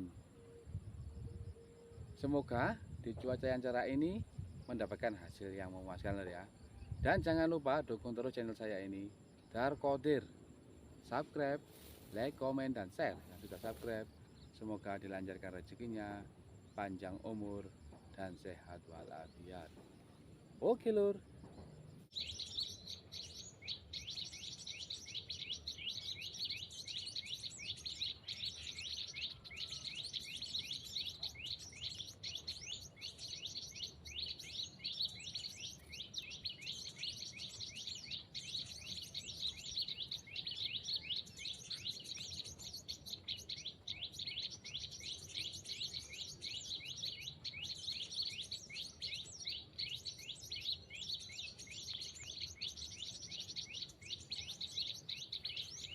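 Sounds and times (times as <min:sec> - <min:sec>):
bird chirping rapidly: 0:22.0 - 0:55.9.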